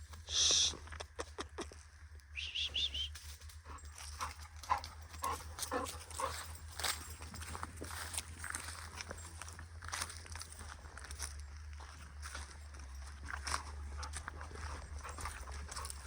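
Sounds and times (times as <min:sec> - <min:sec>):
high chirps: 0:02.4 - 0:03.2.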